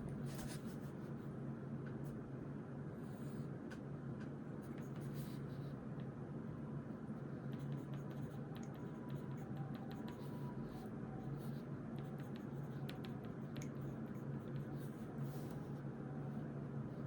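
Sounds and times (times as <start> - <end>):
low room hum: 0.0 - 17.0
pen scratching on paper: 7.4 - 15.6.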